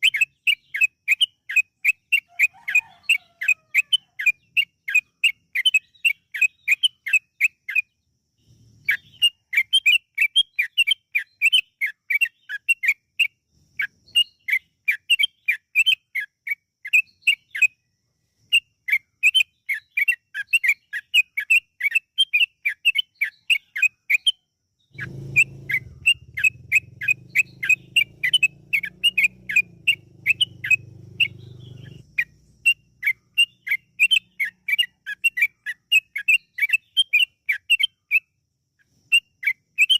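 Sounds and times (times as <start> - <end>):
bird singing bubbly notes: 25.0 - 36.3.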